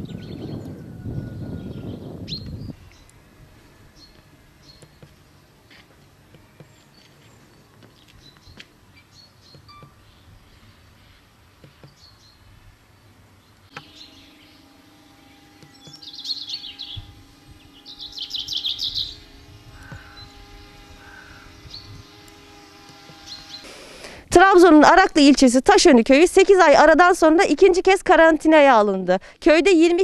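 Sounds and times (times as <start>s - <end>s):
small birds chirping: 0.0s - 23.8s
steady low hum: 0.0s - 25.0s.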